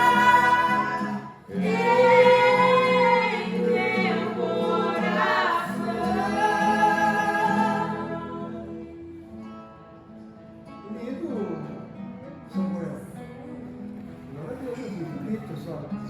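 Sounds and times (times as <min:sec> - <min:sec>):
voices singing a hymn: 0:00.0 - 0:09.3.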